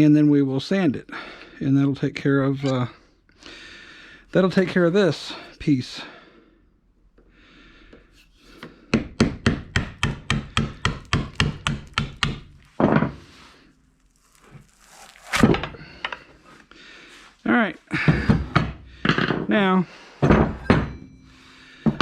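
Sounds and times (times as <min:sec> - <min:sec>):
loud scrape: 0:12.6 - 0:15.8.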